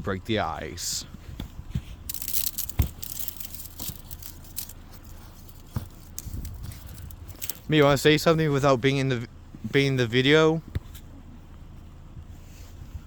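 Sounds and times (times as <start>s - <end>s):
ice cracking and crunching: 2.1s - 7.7s.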